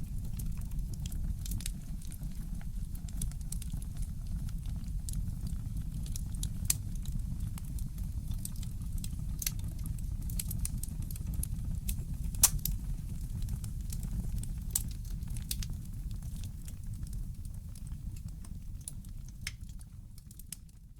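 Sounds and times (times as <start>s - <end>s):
wood fire crackling: 0.0s - 20.9s
sharp pops from fire: 8.3s - 20.7s.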